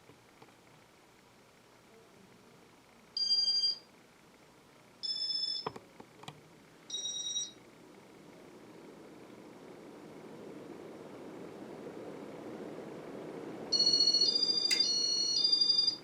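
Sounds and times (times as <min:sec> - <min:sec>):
sharp click: 0:14.7 - 0:14.9.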